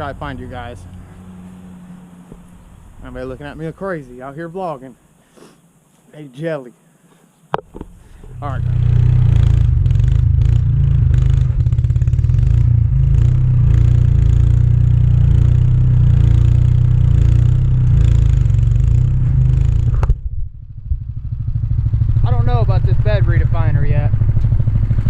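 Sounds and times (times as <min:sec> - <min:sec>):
small gas engine running hard: 0:08.2 - 0:20.2.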